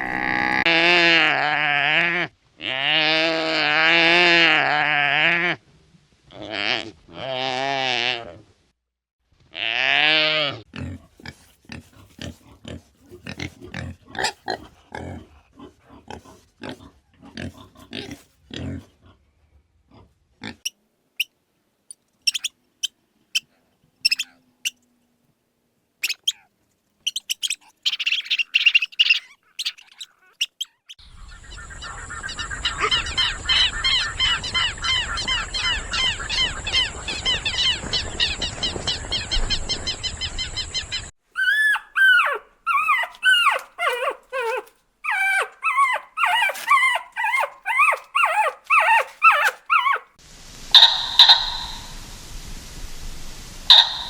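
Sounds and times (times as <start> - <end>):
chorus of bird-like chirps: 0.0 - 0.7, 22.2 - 24.8, 26.0 - 50.1, 50.7 - 52.0, 53.7 - 54.0
animal grunts: 0.0 - 1.5, 10.7 - 19.2
bleat-like animal call: 0.0 - 5.6, 9.5 - 10.7.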